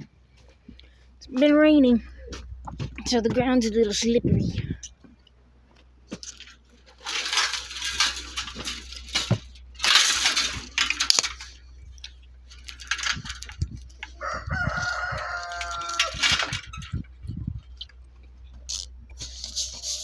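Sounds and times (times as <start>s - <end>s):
loud rustling: 6.2s - 17.1s
rooster crowing: 14.1s - 16.5s.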